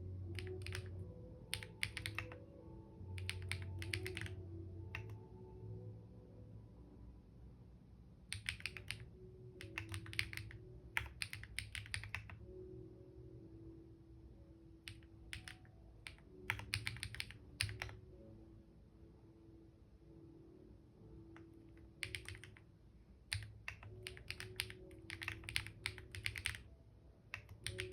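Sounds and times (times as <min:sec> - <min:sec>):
typing on computer keyboard: 0:00.4 - 0:02.4, 0:03.2 - 0:05.2, 0:08.3 - 0:12.5, 0:14.8 - 0:18.0, 0:21.4 - 0:22.7, 0:23.3 - 0:26.7, 0:27.3 - 0:27.9.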